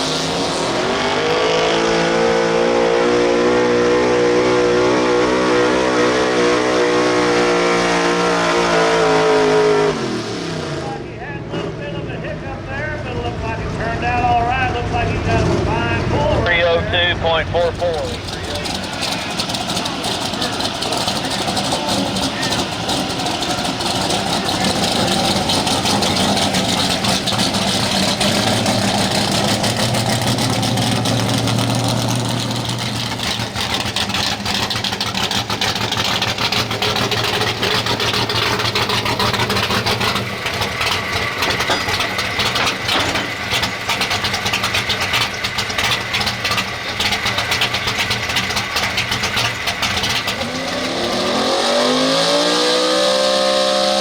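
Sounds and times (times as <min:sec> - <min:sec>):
truck engine idling: 0:00.0 - 0:02.7, 0:10.8 - 0:52.7
crowd chatter: 0:12.4 - 0:30.5.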